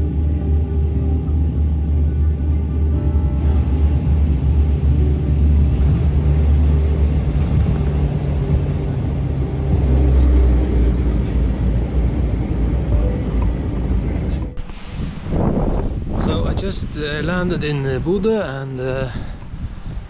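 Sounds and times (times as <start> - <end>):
airliner cabin engine rumble: 0.0 - 14.7.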